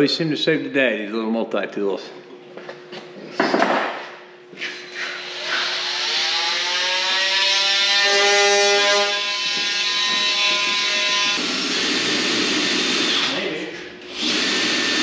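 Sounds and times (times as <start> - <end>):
multi-tool buzzing drone: 4.5 - 15.0.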